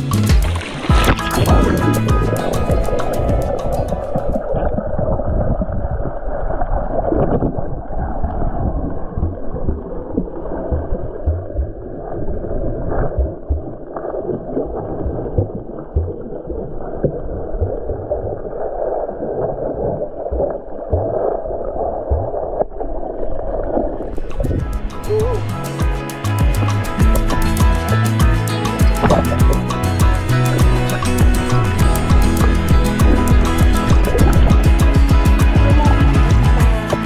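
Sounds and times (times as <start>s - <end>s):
muffled stream water rushing: 0.0s - 37.0s
low knocks and thuds: 24.5s - 37.0s.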